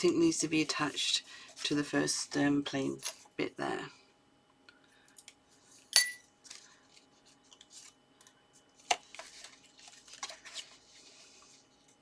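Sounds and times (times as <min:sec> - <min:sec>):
sharp ringing clink: 0:06.0 - 0:06.3
paper rustling: 0:06.4 - 0:08.0, 0:08.8 - 0:12.0.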